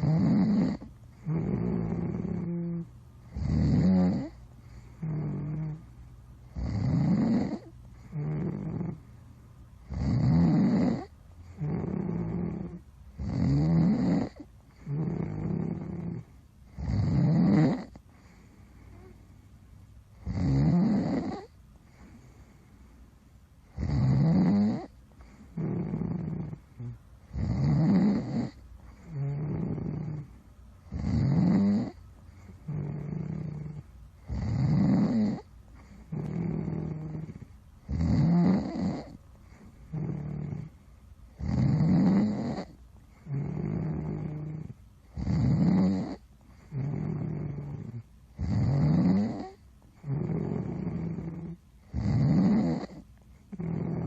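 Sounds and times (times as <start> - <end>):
person snoring: 0.0 - 5.8, 6.5 - 9.0, 9.9 - 19.2, 20.2 - 22.3, 23.7 - 30.3, 30.9 - 40.7, 41.4 - 54.0.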